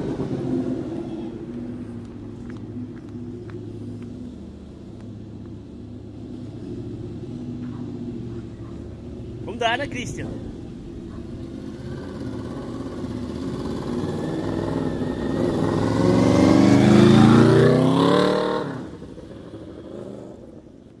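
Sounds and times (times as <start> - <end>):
motorcycle engine accelerating: 10.3 - 21.0.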